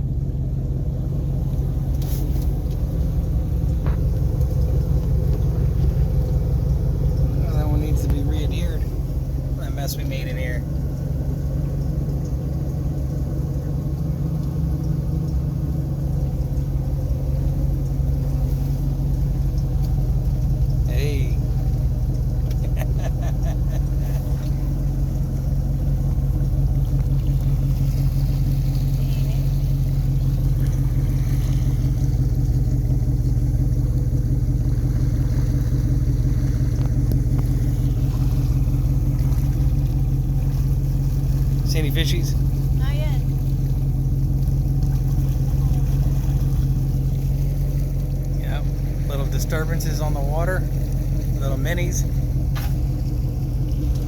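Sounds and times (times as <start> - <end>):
boat engine humming: 0.0 - 54.0.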